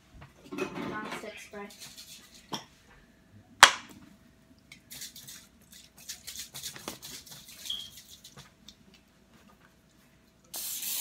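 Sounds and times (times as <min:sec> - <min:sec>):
aerosol spray hissing bursts: 0:10.5 - 0:11.0.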